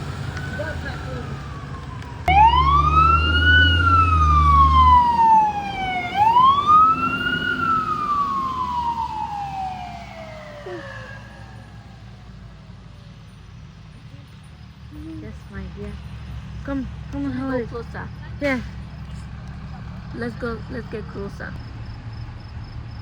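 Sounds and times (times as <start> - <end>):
emergency siren wailing: 0.0 - 13.1.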